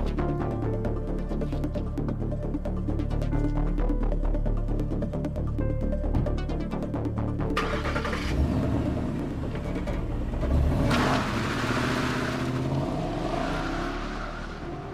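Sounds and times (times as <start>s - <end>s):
car engine revving: 7.6s - 14.9s.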